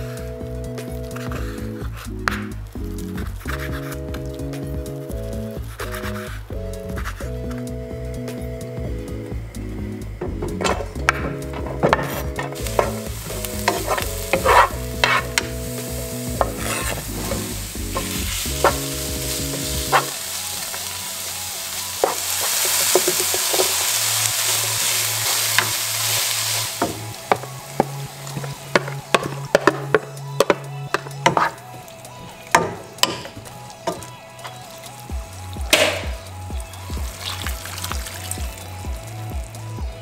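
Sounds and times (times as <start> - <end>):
background music with bass: 0.0 - 40.0
wooden spatula scraping a pan: 10.6 - 20.2, 22.0 - 31.6
food sizzling in a frying pan: 12.6 - 29.7, 34.5 - 35.7, 36.5 - 39.6.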